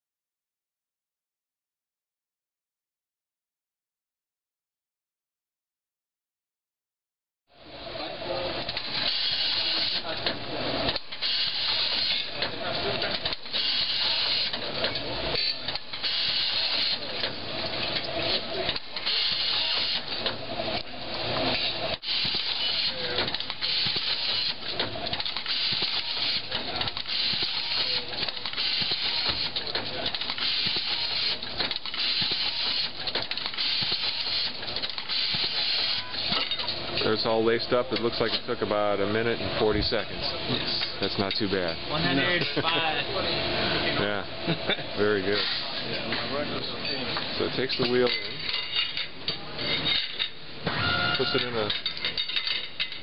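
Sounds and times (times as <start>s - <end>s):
wheel-lacing machine clicking: 8.6s - 36.8s.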